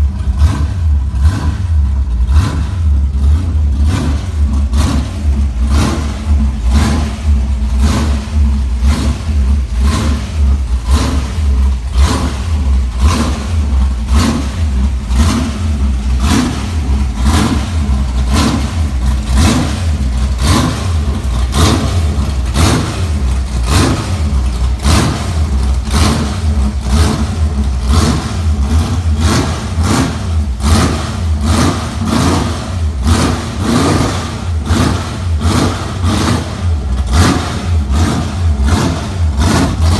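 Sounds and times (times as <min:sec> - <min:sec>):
vee eight engine rumbling: 0:00.0 - 0:39.9.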